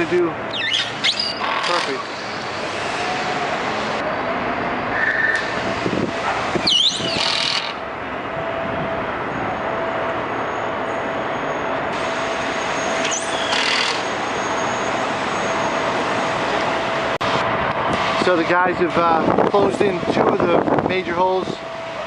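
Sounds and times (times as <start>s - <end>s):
vehicle engine noise: 0.0s - 22.0s
high sliding squeals: 0.5s - 5.7s, 6.6s - 7.5s, 10.2s - 16.5s.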